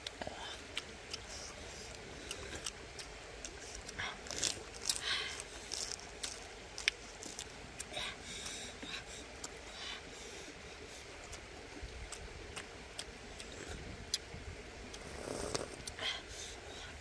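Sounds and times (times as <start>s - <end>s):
lettuce crunching in mouth: 0.0s - 8.0s, 14.9s - 16.0s
wet mouth clicks: 14.9s - 16.0s.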